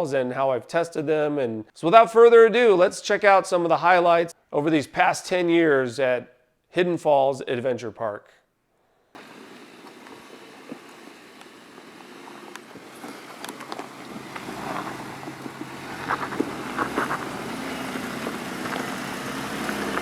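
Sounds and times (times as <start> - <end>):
car engine running at low revs: 9.2 - 20.0.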